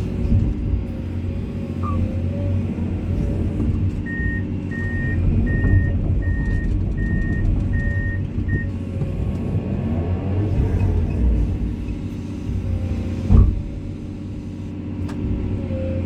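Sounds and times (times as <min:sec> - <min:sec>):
excavator diesel engine running: 0:00.0 - 0:16.0
reversing alarm beeping: 0:01.8 - 0:02.1, 0:04.0 - 0:08.8.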